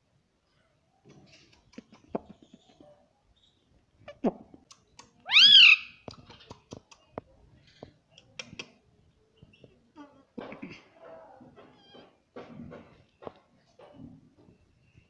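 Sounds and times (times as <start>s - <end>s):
parrot shrill call: 5.3s - 6.0s.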